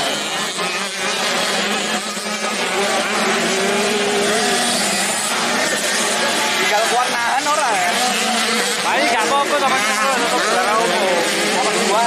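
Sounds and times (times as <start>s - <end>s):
dirt-bike engines running hard: 0.0s - 12.0s.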